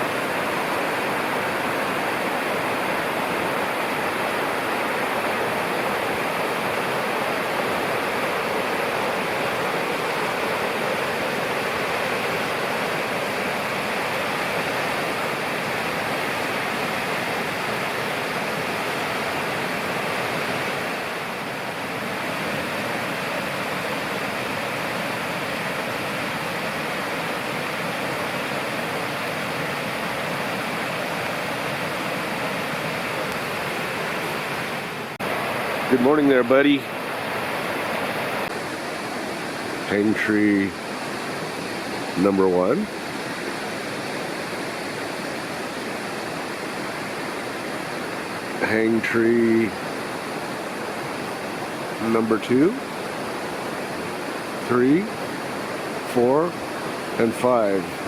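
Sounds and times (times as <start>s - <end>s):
river rushing: 0.0s - 58.0s.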